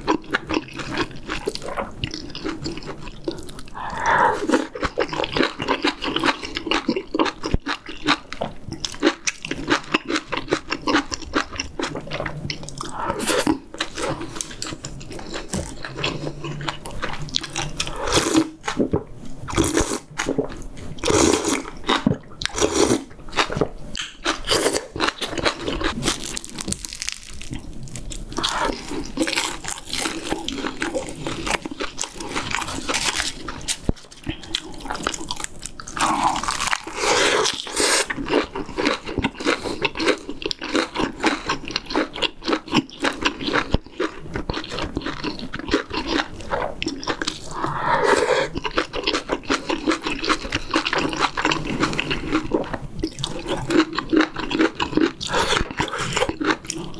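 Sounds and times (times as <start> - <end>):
person chewing food: 0.0 - 56.9
wet mouth sounds: 1.7 - 5.1.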